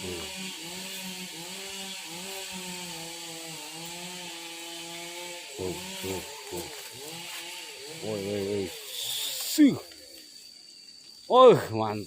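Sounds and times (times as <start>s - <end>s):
chainsaw cutting wood: 0.0s - 9.6s.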